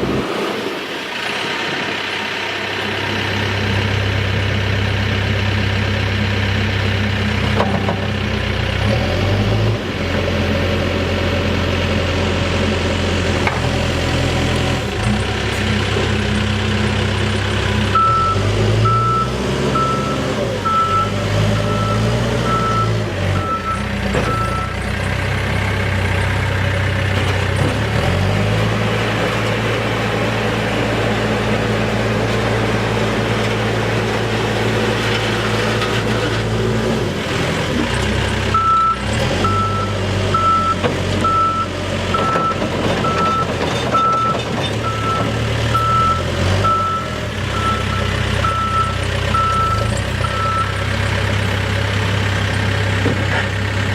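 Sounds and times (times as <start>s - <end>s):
backhoe diesel engine running: 0.0s - 53.9s
reversing alarm beeping: 17.9s - 24.8s, 38.5s - 50.8s.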